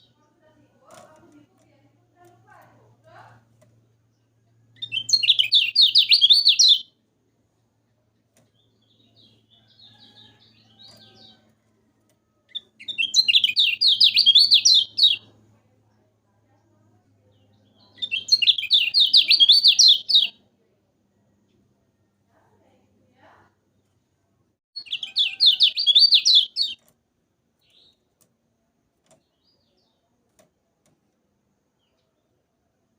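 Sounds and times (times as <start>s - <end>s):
soft bird chatter: 0.0s - 26.9s, 27.5s - 32.9s
songbird warbling trills: 4.8s - 6.8s, 12.5s - 15.2s, 17.8s - 20.3s, 24.8s - 26.8s.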